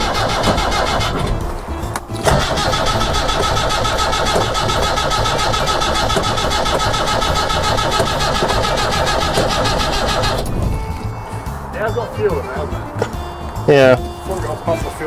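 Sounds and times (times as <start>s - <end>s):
engine cranking by starter motor: 0.0s - 11.9s.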